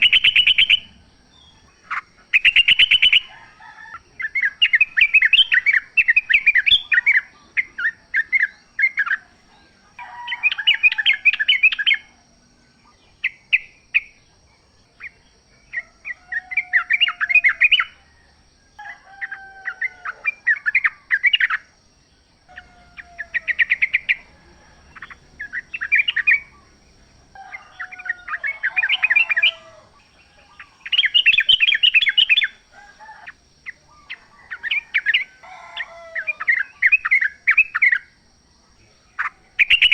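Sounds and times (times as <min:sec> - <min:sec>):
bird chattering song: 0:00.0 - 0:18.2, 0:19.2 - 0:39.9
faint steady high tone: 0:22.4 - 0:38.1.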